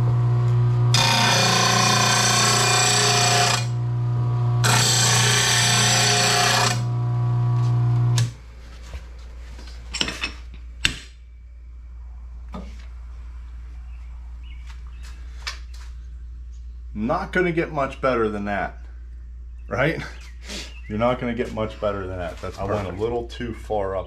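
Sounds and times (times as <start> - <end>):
blade sharpener grinding steel: 0.9 - 3.8, 4.6 - 7.4.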